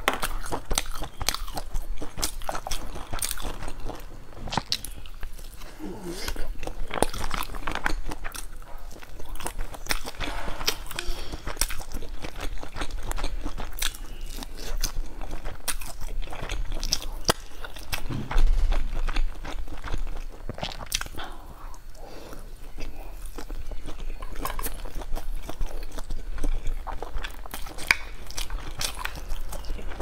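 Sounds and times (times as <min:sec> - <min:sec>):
chewing with mouth clicks: 0:00.0 - 0:30.0
low thump: 0:18.0 - 0:18.8.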